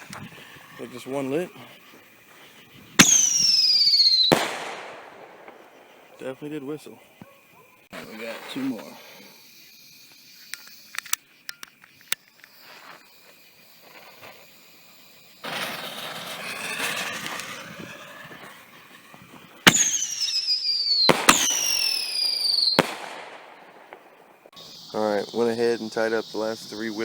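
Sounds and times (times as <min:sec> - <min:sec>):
falling firework whistle: 0:02.7 - 0:06.6, 0:12.0 - 0:27.0
firework cracks: 0:02.9 - 0:07.1, 0:11.8 - 0:24.7
firework bang: 0:03.0 - 0:06.2, 0:15.4 - 0:24.5.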